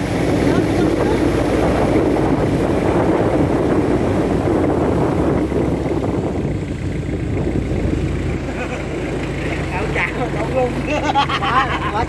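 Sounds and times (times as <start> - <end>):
wind on microphone: 0.0 - 8.5
speedboat engine running: 0.0 - 12.0.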